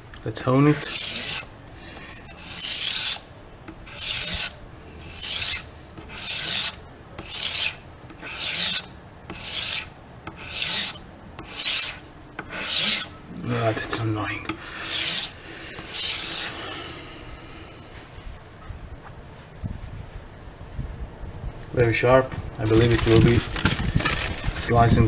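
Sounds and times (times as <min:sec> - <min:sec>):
knife scraping on sharpener: 0:00.7 - 0:01.5, 0:02.1 - 0:03.2, 0:03.8 - 0:13.1, 0:14.5 - 0:16.6.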